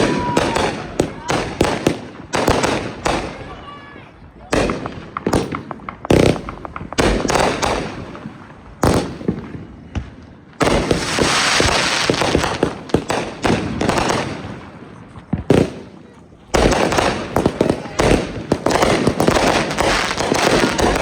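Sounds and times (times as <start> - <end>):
firework booms: 0.0 - 3.6, 4.4 - 21.0
fireworks crackling: 0.0 - 21.0
firework pops: 4.6 - 7.9.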